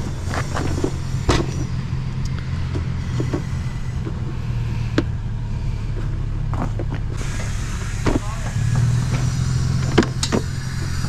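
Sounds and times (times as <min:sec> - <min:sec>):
sharp knocks and clanks: 0:00.0 - 0:01.8, 0:06.0 - 0:11.0
vehicle engine idling: 0:00.0 - 0:11.0.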